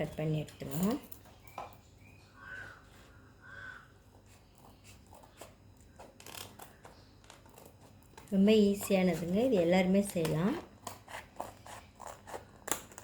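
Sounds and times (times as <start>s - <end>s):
crow cawing faintly: 2.2s - 4.2s.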